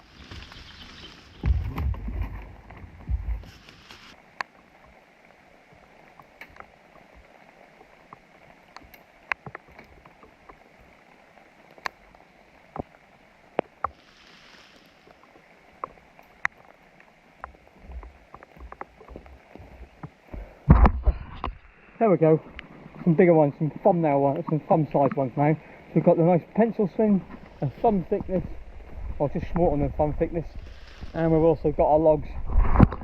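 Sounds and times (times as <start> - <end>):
raindrops ticking: 0.0 - 20.8
steady rain falling: 0.0 - 32.9
low thuds: 1.4 - 3.6.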